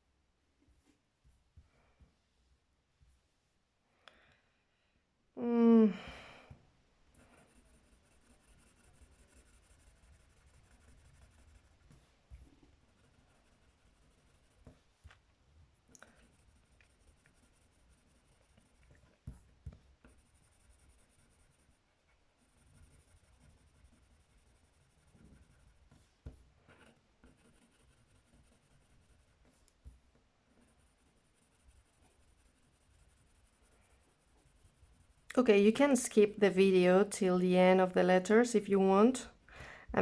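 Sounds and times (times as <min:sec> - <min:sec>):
pen scratching on paper: 0:07.2 - 0:14.8, 0:16.1 - 0:21.8, 0:22.4 - 0:29.6, 0:30.5 - 0:35.3.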